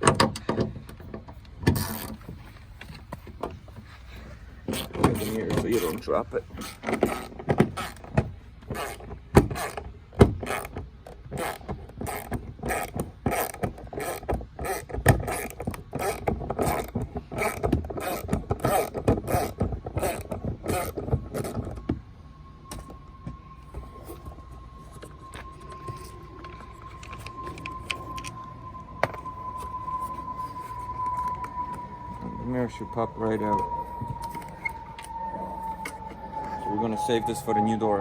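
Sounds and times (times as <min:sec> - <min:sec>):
faint steady tone: 0:20.1 - 0:38.0.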